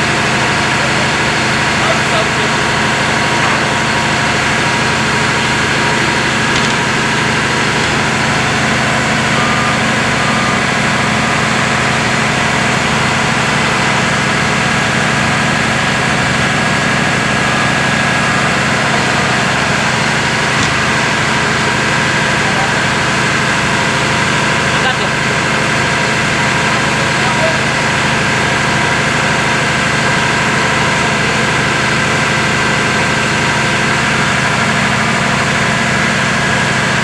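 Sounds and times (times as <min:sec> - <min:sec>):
engine running: 0:00.0 - 0:37.0.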